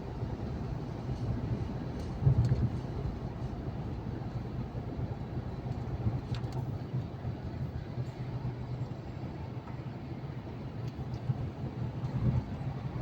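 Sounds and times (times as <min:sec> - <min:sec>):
truck engine and road noise: 0:00.0 - 0:13.0.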